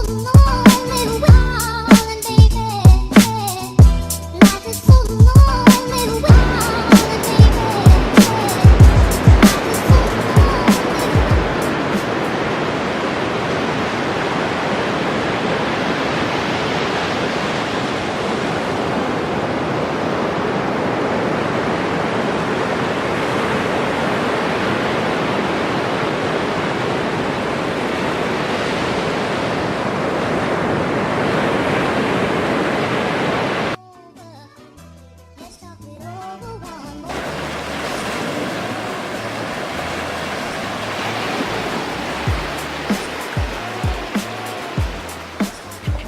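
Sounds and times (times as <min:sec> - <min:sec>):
ocean surf breaking on beach: 0:05.7 - 0:33.8, 0:37.1 - 0:46.0
wind on microphone: 0:06.3 - 0:33.8, 0:37.7 - 0:46.0.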